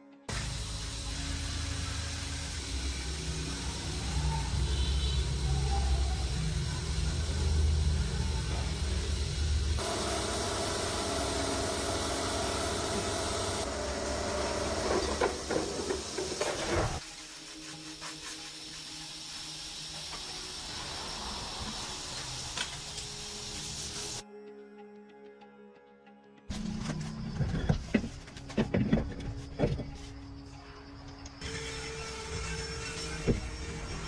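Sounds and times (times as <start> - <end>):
steady hissing: 0.3 - 24.2.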